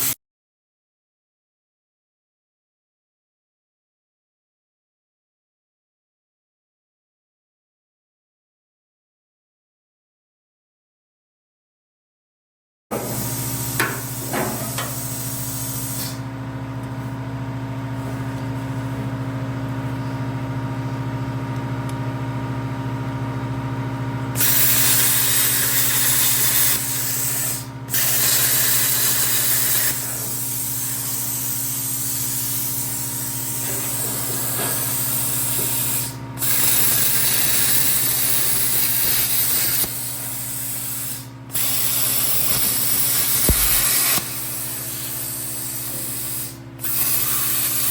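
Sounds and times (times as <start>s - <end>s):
plasma cutter hissing: 13.1s - 16.2s, 24.4s - 47.9s
steady electrical hum: 13.2s - 47.9s.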